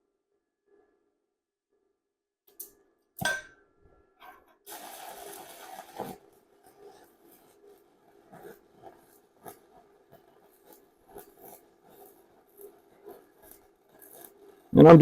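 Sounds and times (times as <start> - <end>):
sharp metallic clack: 2.5 - 3.6
welding arc crackling hiss: 4.7 - 15.0.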